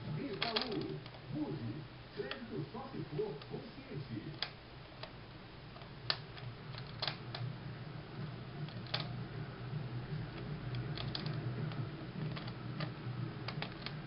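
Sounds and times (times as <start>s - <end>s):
steady low hum: 0.0s - 14.0s
mechanical clicks and creaks: 0.3s - 1.2s, 5.8s - 7.5s, 8.6s - 9.2s, 10.3s - 14.0s.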